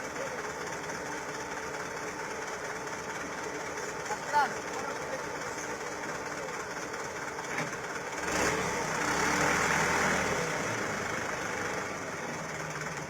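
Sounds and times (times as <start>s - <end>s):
truck diesel engine revving: 8.2s - 12.0s.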